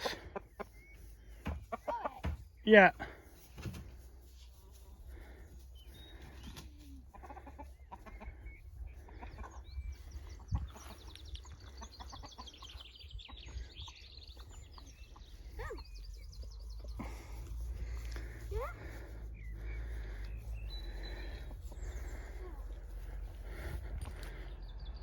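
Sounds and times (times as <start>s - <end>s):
chickens clucking softly: 6.3s - 15.9s.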